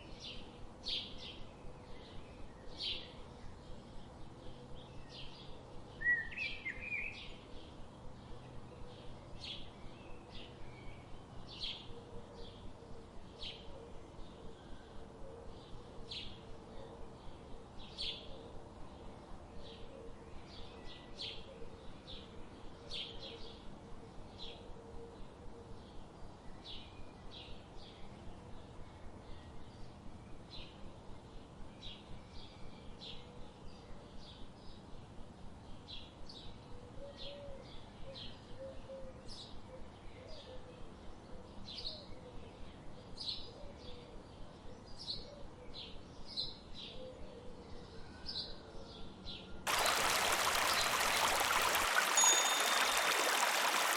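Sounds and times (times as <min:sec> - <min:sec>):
birds chirping: 0:49.7 - 0:53.9.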